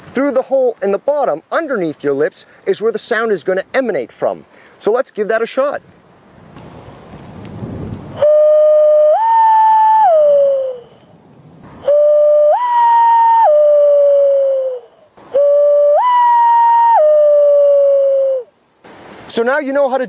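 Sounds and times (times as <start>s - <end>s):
hand whistled loon calls: 8.2s - 11.1s, 11.8s - 18.5s
breathy blowing: 8.2s - 18.5s.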